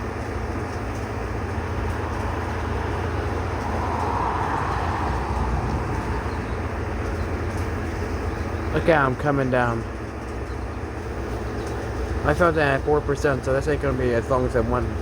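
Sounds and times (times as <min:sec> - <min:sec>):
low rumble: 0:01.4 - 0:08.6.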